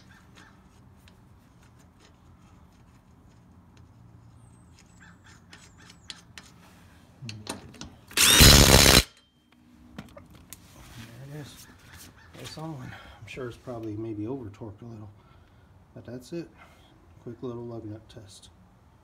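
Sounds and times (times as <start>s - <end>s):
impact driver hammering a nut: 8.2s - 9.2s.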